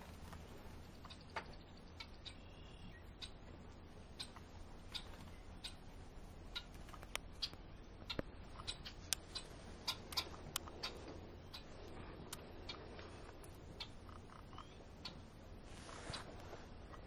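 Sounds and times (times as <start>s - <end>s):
small bird chirp: 0.6s - 5.9s, 6.5s - 16.3s
sharp ticks and clicks: 4.2s - 5.8s, 6.5s - 11.7s.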